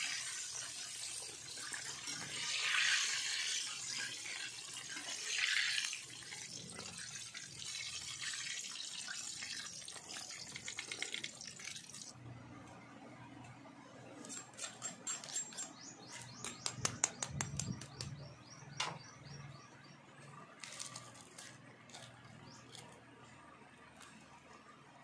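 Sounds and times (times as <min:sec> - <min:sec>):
small birds chirping: 0:14.7 - 0:21.2.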